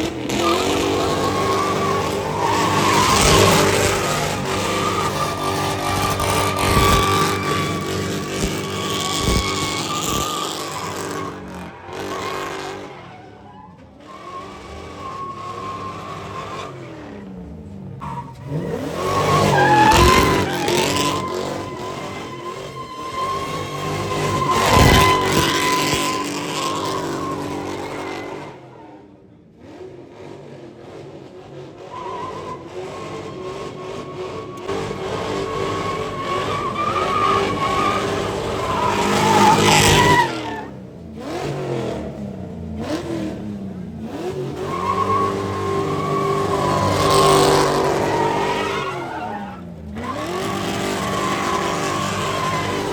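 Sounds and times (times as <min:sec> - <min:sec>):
car engine revving: 0:00.0 - 0:28.9, 0:29.5 - 0:52.9
tire squeal: 0:00.0 - 0:29.2, 0:31.6 - 0:52.9.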